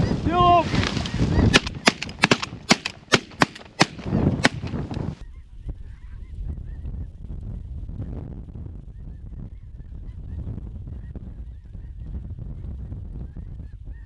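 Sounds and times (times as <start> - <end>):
shotgun shots: 1.5 - 4.9.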